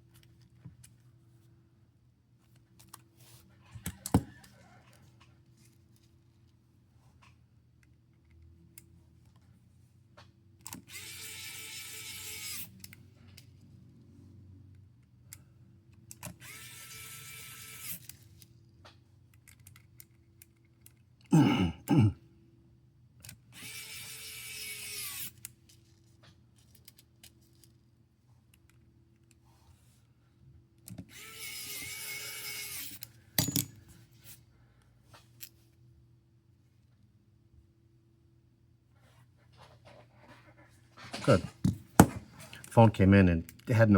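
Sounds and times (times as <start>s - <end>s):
electric screwdriver whirring: 10.8s - 12.7s, 16.3s - 18.1s, 23.5s - 25.4s, 31.1s - 33.1s.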